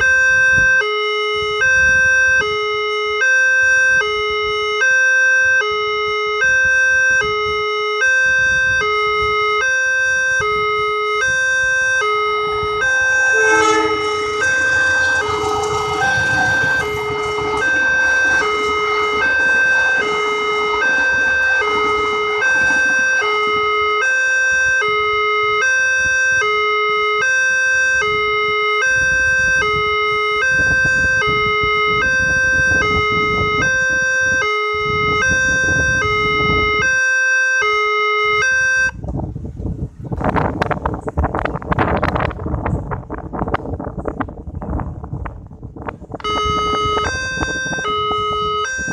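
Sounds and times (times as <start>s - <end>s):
two-tone level crossing siren: 0.0s - 39.0s, 46.2s - 48.9s
broad passing noise: 11.5s - 25.2s.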